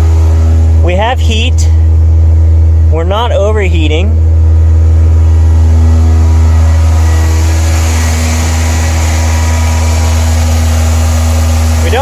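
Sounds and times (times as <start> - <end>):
radiator fan rushing hiss: 0.0 - 12.0.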